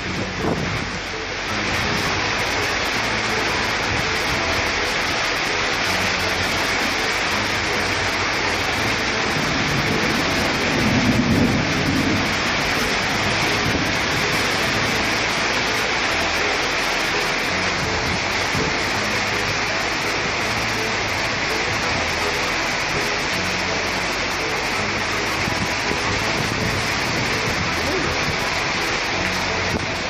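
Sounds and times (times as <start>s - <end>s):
heavy rain pouring: 0.0s - 30.0s
low rumble: 7.2s - 16.4s.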